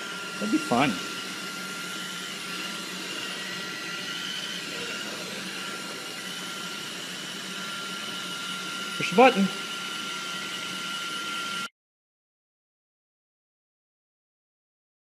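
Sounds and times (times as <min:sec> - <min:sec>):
thin high whine: 0:00.0 - 0:11.7.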